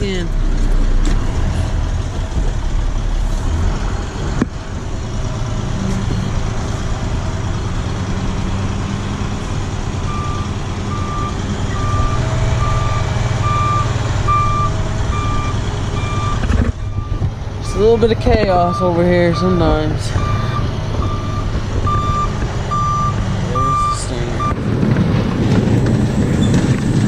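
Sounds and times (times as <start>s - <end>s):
truck diesel engine running: 0.0s - 27.0s
reversing alarm beeping: 10.1s - 24.6s.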